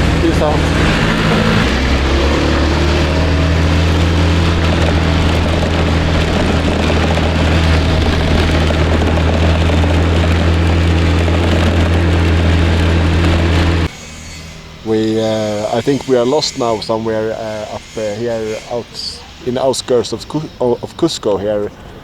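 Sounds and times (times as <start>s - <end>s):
wind on microphone: 0.0s - 13.9s
scooter engine droning: 0.0s - 22.0s.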